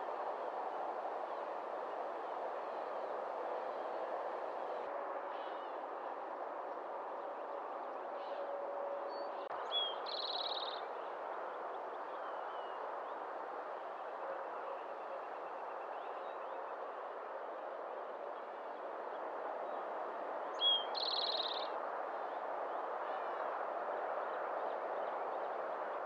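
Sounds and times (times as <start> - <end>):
songbird trills: 9.7 - 10.8, 20.6 - 21.7.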